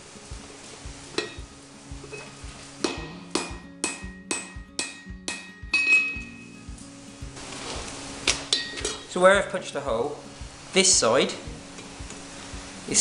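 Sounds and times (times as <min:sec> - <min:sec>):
hammer striking metal punch: 0:02.8 - 0:06.4.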